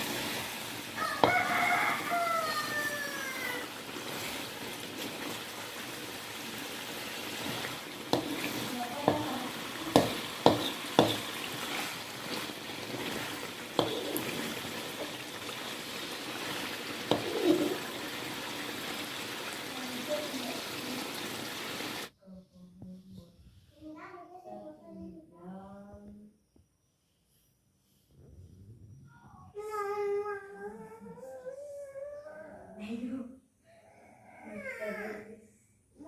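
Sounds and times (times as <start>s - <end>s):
food sizzling in a pan: 0.0s - 22.1s
spatula knocking against pan: 8.1s - 8.4s, 9.9s - 11.3s, 17.1s - 17.5s.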